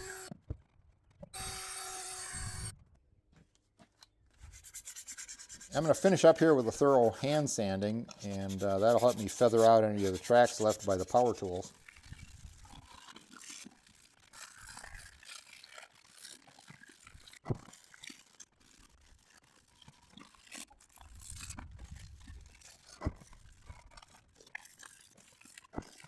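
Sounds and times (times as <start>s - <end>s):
sandpaper rubbing on metal: 4.4s - 12.6s.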